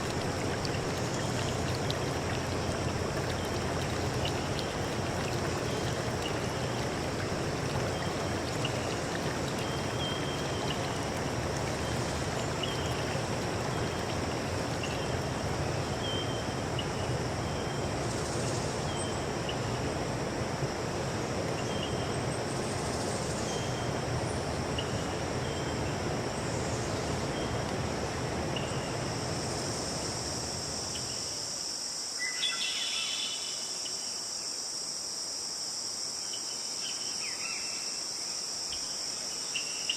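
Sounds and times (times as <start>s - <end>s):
running water: 0.0s - 28.6s
insects trilling: 0.0s - 39.9s.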